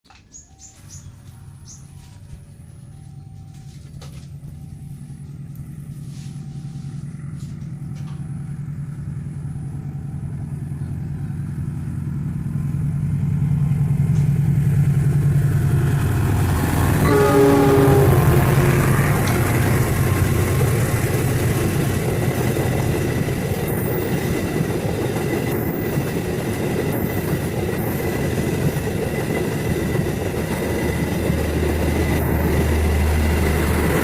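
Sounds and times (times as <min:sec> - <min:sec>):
locomotive engine drone: 0:00.1 - 0:34.0
locomotive horn blast: 0:16.8 - 0:20.6.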